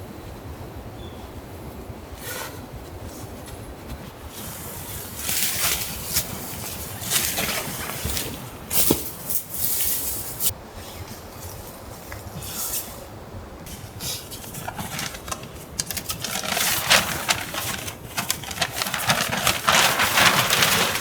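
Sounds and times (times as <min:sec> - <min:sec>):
rustling and crunching: 0:03.8 - 0:13.0, 0:13.6 - 0:21.0.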